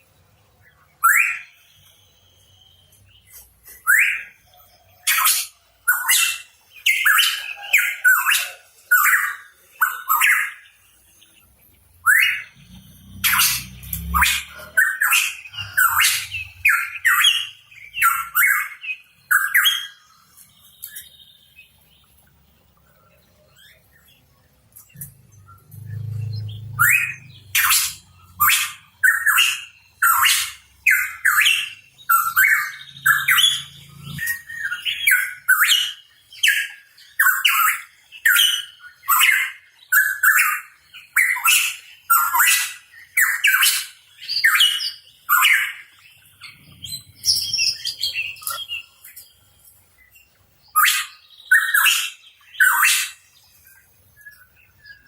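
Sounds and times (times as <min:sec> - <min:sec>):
bird harsh downward calls: 0:01.0 - 0:02.8, 0:12.0 - 0:20.0, 0:25.0 - 0:49.0, 0:50.7 - 0:53.3.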